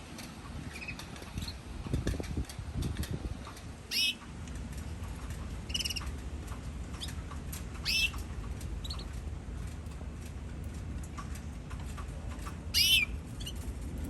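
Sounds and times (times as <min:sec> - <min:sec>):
canaries chirping: 0:03.9 - 0:04.2, 0:05.7 - 0:06.1, 0:07.8 - 0:08.2, 0:08.8 - 0:09.2, 0:12.7 - 0:13.7.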